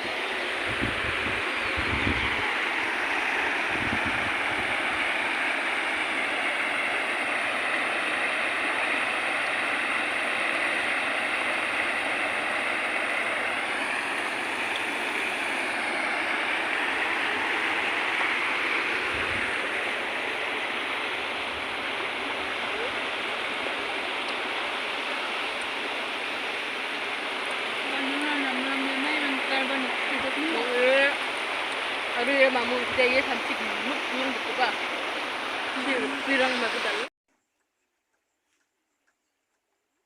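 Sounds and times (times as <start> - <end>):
river rushing: 0.0 - 37.1
wind buffeting microphone: 0.6 - 5.3, 16.8 - 23.0.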